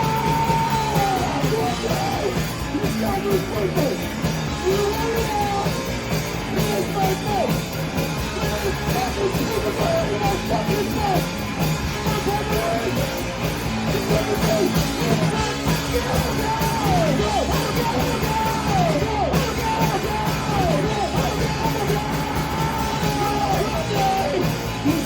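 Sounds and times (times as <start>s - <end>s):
person shouting vocals: 0.0s - 4.0s
live rock band playing: 0.0s - 25.0s.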